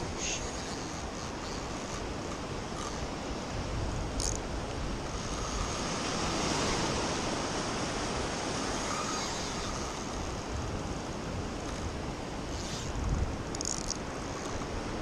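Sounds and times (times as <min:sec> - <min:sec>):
ocean surf washing onto beach: 0:05.8 - 0:12.4.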